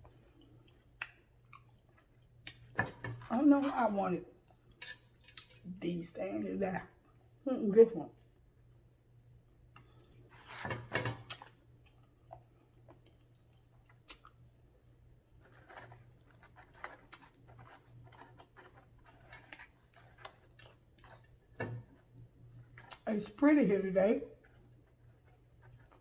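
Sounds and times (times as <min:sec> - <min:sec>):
chewing with mouth smacks: 0:00.0 - 0:03.2, 0:11.2 - 0:14.7, 0:15.6 - 0:23.1
low steady hum: 0:00.0 - 0:26.0.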